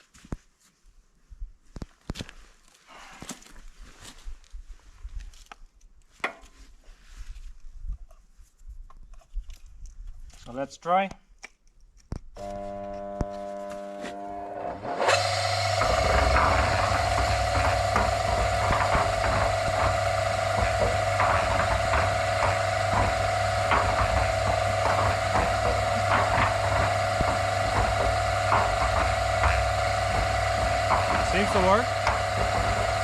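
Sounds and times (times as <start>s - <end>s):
electric motor humming: 12.4s - 33.0s
concrete mixer rumbling: 13.9s - 33.0s
rattling clicks: 14.8s - 33.0s.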